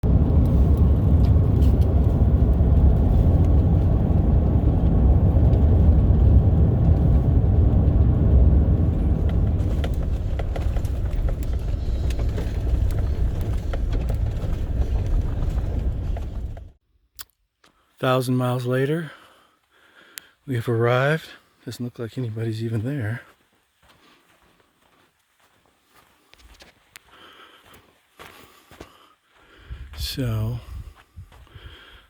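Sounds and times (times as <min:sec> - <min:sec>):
vehicle driving rumble: 0:00.0 - 0:16.8
small clicks and rattles: 0:09.0 - 0:16.7.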